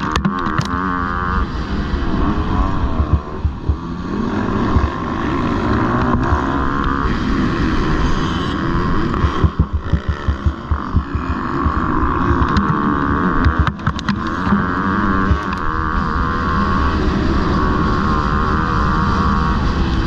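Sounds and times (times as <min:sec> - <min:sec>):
motocross bikes revving: 0:00.0 - 0:20.0
wind buffeting microphone: 0:01.9 - 0:08.1, 0:08.9 - 0:15.6.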